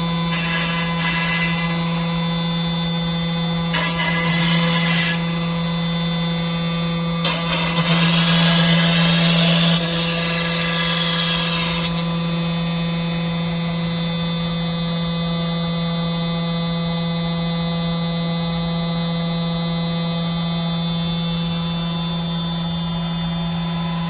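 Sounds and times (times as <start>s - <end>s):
router cutting into wood: 0.0s - 13.0s
router machine humming and whining: 0.0s - 24.0s.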